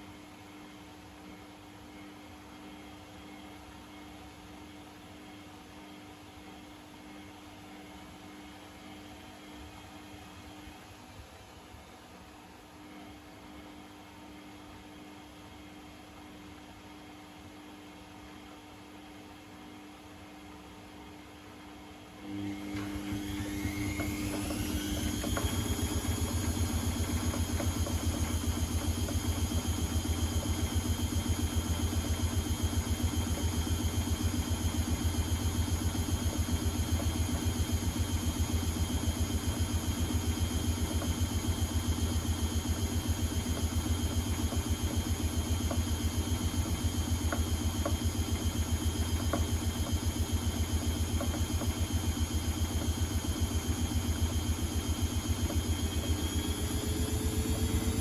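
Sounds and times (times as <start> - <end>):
washing machine motor humming: 22.0 - 58.0.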